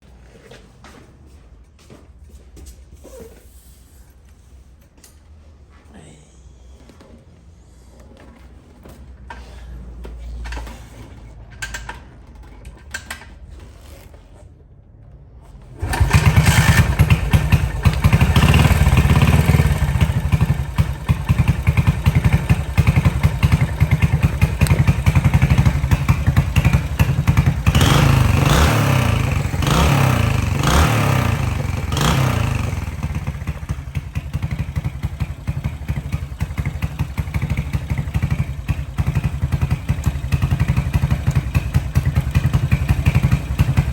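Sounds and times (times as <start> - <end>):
motorcycle engine running: 15.8 - 43.9.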